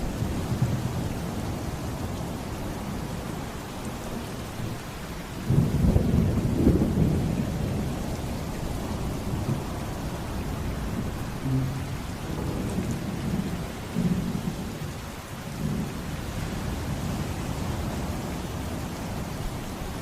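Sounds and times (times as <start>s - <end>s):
rain falling: 0.0s - 20.0s
low storm rumble: 5.5s - 19.6s
thunder rolling: 11.4s - 14.2s.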